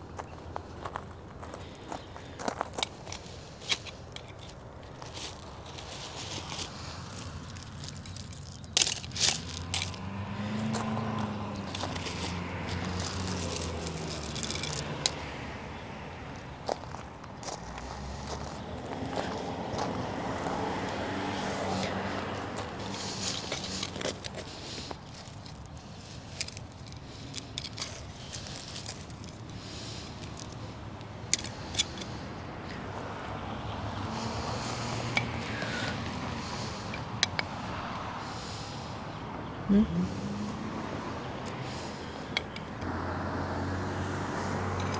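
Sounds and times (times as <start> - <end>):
scraping and crunching soil: 0.0 - 38.9, 40.0 - 43.1, 43.9 - 44.9
dry weeds rustling and crackling: 0.0 - 39.2, 40.5 - 44.9.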